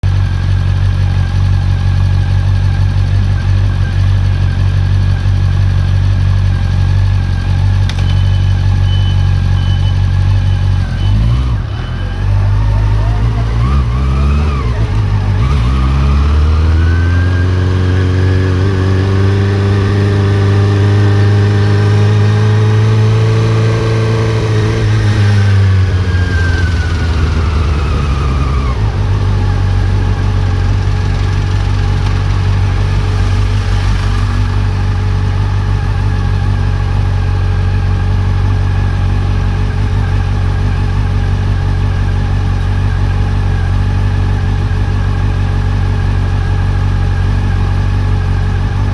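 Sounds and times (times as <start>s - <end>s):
motorcycle engine revving and idling: 0.0s - 48.9s.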